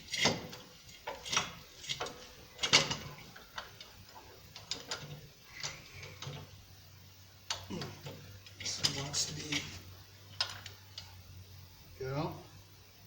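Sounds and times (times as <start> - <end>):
heavy steel parts clanking: 7.7 - 9.8.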